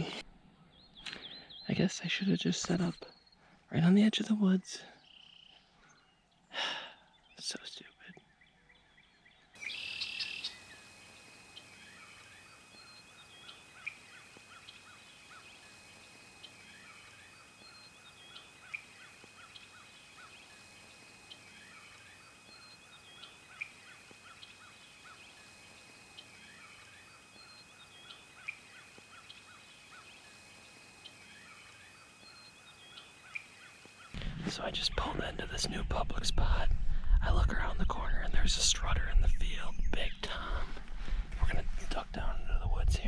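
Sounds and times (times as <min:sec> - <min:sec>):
small calls: 0:09.6 - 0:34.2.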